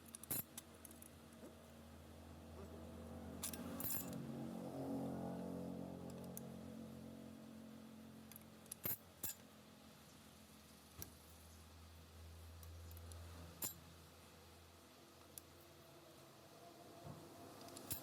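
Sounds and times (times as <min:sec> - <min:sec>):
metal parts clinking: 0:03.4 - 0:04.2, 0:17.7 - 0:18.0.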